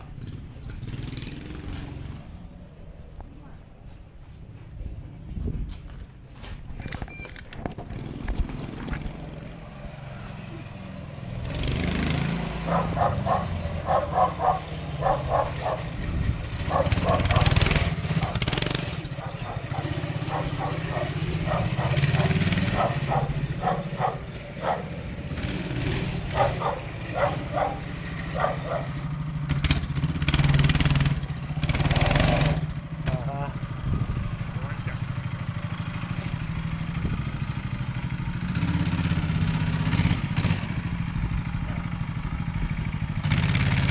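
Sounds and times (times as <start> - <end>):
motorcycle engine running: 0.0 - 2.5, 7.7 - 43.9
dog barking: 12.7 - 15.9, 16.7 - 17.6, 18.2 - 18.5, 19.2 - 25.0, 26.3 - 29.0.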